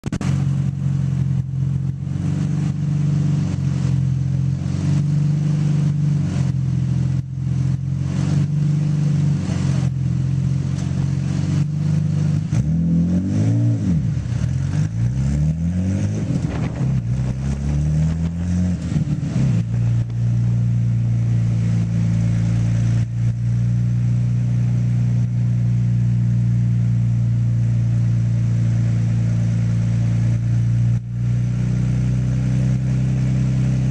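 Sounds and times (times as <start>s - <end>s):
car engine misfiring with pops: 0.0s - 2.0s, 10.7s - 11.8s, 16.1s - 20.3s
car engine revving: 0.0s - 33.9s.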